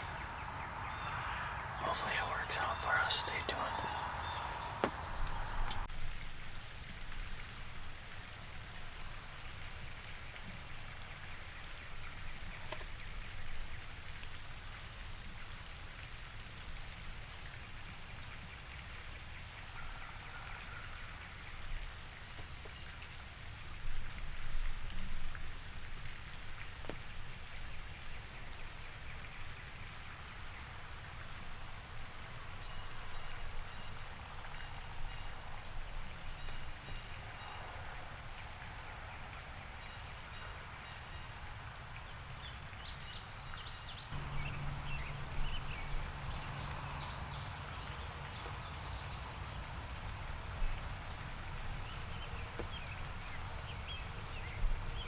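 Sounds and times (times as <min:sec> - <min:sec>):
light rain pattering: 0:00.0 - 0:55.0
faint ticks: 0:03.2 - 0:05.9, 0:44.2 - 0:55.0
wind rumble on microphone: 0:04.0 - 0:05.9, 0:44.2 - 0:55.0.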